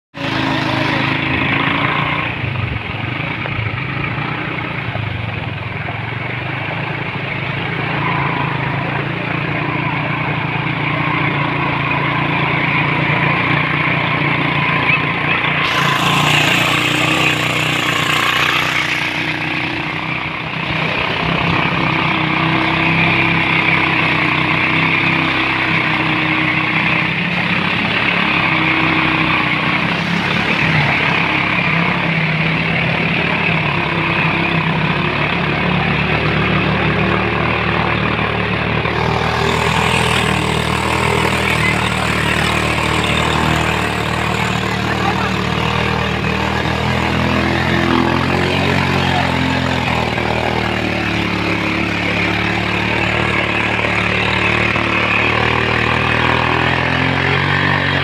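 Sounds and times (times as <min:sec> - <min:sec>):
motorcycle engine running: 0:00.1 - 0:58.0.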